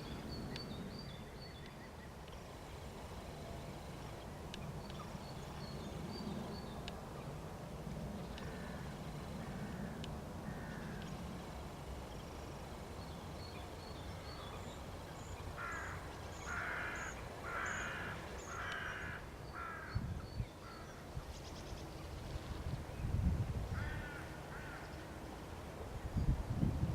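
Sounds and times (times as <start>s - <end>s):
crow cawing: 9.4s - 11.1s, 15.6s - 20.0s, 23.8s - 24.9s.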